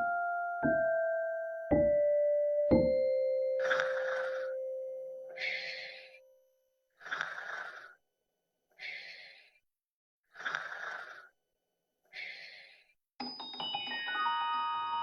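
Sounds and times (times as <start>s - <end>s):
music with ringing chime notes: 0.0s - 5.5s, 13.2s - 15.0s.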